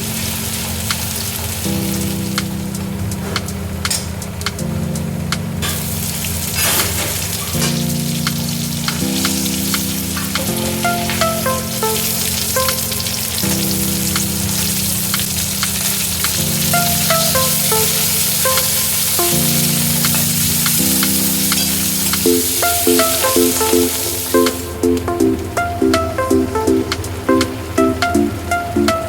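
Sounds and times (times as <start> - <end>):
food sizzling in hot oil: 0.0 - 2.4, 5.7 - 24.7
background music: 7.5 - 29.0.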